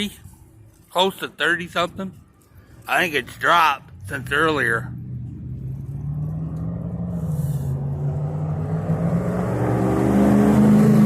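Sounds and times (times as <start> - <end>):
vehicle engine approaching: 1.6 - 11.0.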